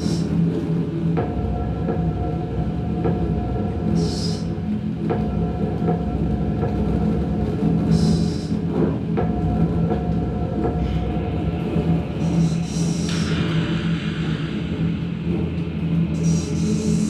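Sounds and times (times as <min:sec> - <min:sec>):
low droning rumble and hum: 0:00.0 - 0:17.0
hissing swell: 0:11.8 - 0:17.0.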